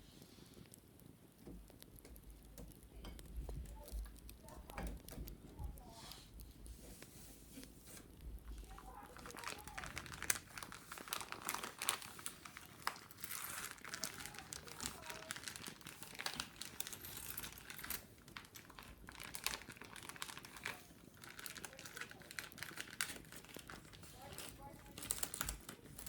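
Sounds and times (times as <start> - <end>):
sharp clicks and taps: 0.6 - 8.8
wicker basket rustling: 3.4 - 26.0.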